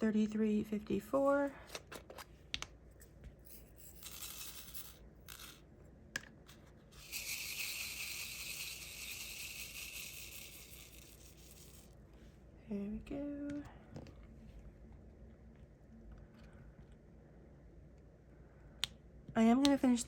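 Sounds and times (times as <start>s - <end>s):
tiny resin beads rattling: 3.6s - 5.6s, 7.0s - 11.9s.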